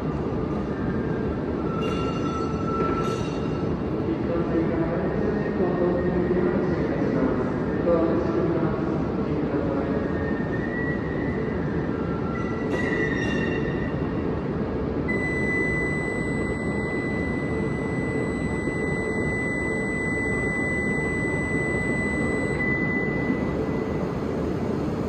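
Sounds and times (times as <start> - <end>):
short pitched tones: 15.1 - 24.1
high steady tone: 15.1 - 25.0.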